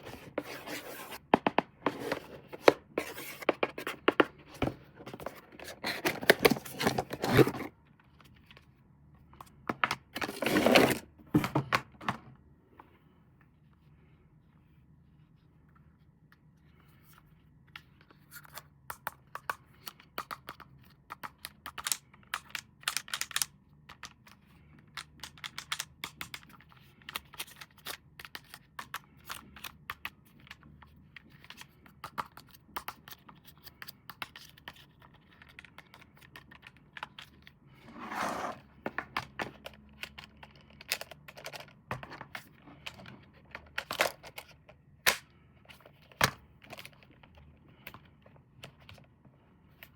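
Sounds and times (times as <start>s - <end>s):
packaging clicks and scrapes: 0.0s - 7.7s, 10.2s - 11.1s.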